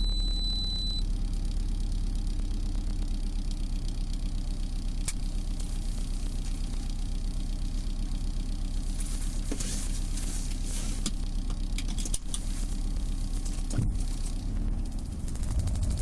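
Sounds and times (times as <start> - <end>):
car cabin rumble: 4.9 - 16.0.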